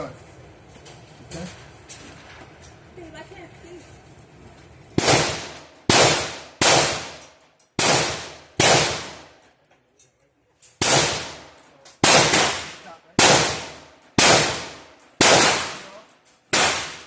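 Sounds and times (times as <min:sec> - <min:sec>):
gunshots with ringing tail: 0:05.0 - 0:07.2, 0:07.8 - 0:09.3, 0:10.8 - 0:11.4, 0:12.0 - 0:17.0.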